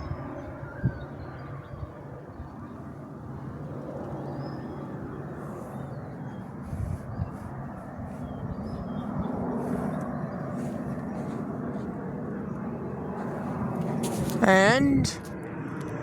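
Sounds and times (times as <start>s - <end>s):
distant aircraft engine rumble: 0.0s - 16.0s
faint bird chirps: 4.0s - 11.8s.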